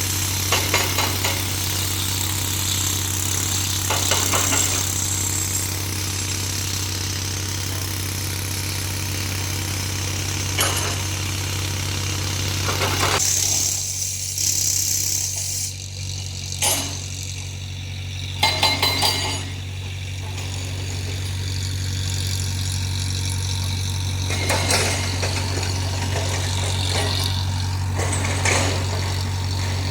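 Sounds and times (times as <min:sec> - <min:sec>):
heavy machine engine running: 0:00.0 - 0:29.9
metal or rock clanking: 0:18.4 - 0:21.9, 0:24.1 - 0:29.9.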